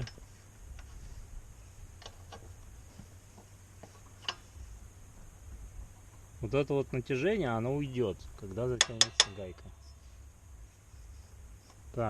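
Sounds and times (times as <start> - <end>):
spanners clicking and tapping: 8.7 - 10.0.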